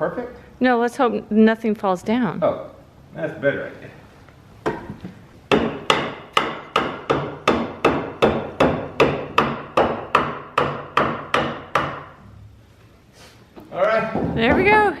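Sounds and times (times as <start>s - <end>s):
hammer striking wood: 4.6s - 12.2s.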